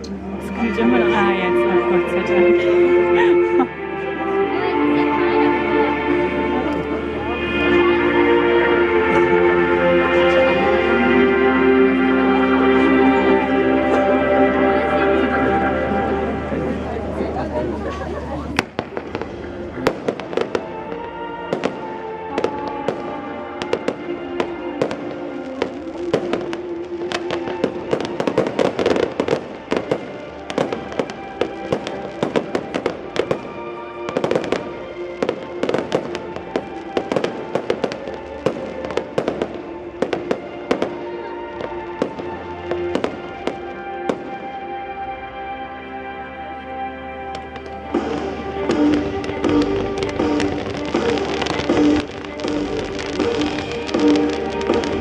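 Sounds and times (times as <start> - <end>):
music playing: 0.0 - 55.0
fireworks bangs and crackles: 14.8 - 44.6, 47.3 - 55.0.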